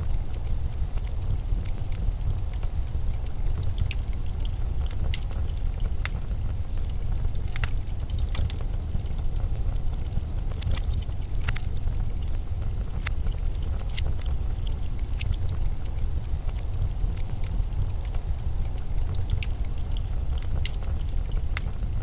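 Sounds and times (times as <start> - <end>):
deep rumble of wind: 0.0 - 22.0
sharp crackles and ticks: 0.0 - 22.0.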